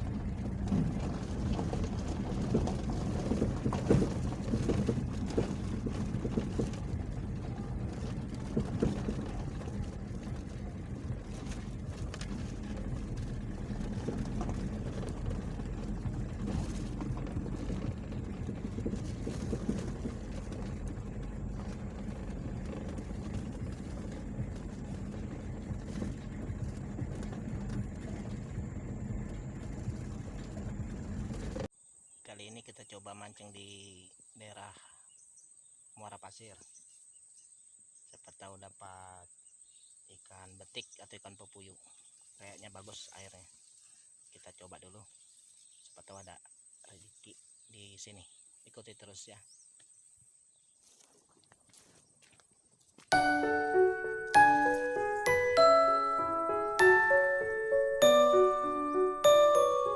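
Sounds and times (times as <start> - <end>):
small boat engine running: 0.0 - 31.7, 53.1 - 59.9
wind: 0.0 - 59.9.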